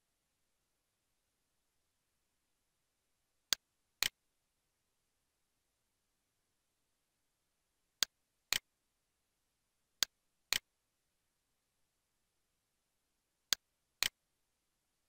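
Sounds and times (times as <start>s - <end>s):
computer mouse clicks: 8.0s - 8.6s.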